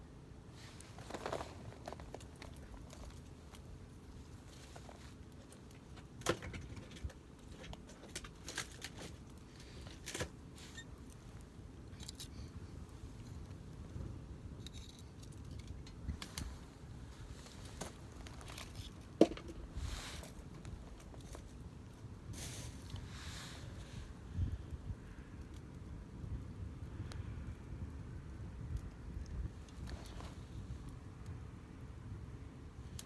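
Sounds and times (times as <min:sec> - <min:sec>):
campfire crackling and popping: 0:24.6 - 0:29.9.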